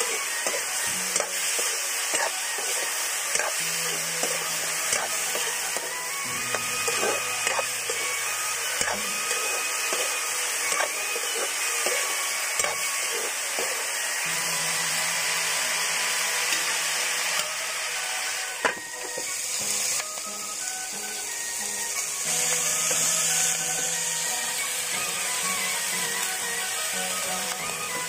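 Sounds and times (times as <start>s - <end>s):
pork sizzling in a pan: 0.0s - 28.0s
spatula knocking and scraping pan: 6.5s - 12.0s.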